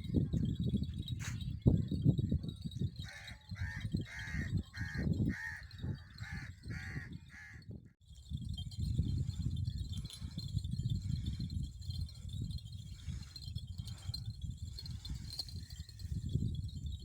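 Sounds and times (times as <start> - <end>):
crow cawing: 3.1 - 7.6.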